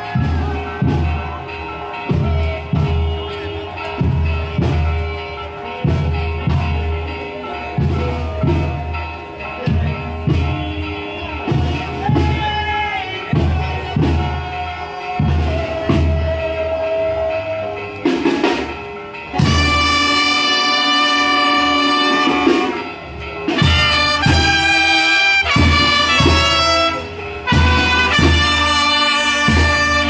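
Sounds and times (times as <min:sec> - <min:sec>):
brass band playing: 0:09.6 - 0:30.0.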